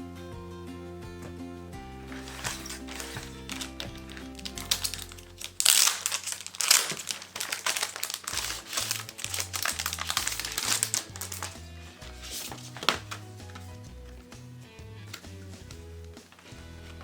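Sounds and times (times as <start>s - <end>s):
packaging crinkling: 2.1s - 13.6s.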